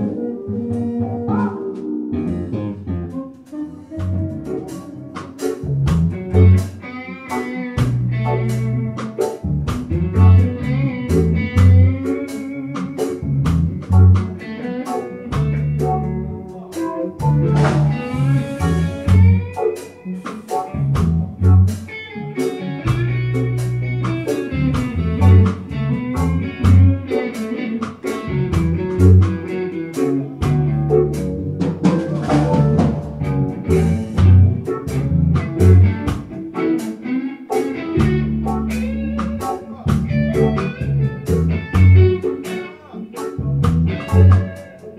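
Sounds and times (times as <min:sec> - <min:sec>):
bending melodic guitar lines: 0:00.0 - 0:44.9
live band playing: 0:00.0 - 0:44.9.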